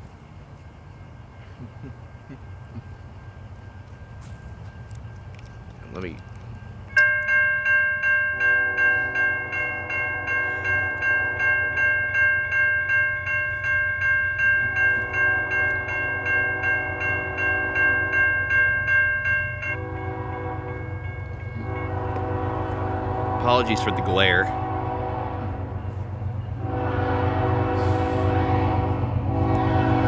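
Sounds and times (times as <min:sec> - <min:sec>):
railroad crossing bells dinging: 0:00.0 - 0:30.0
locomotive horn blasts: 0:08.6 - 0:11.5, 0:14.8 - 0:18.4, 0:19.7 - 0:25.9, 0:26.6 - 0:30.0.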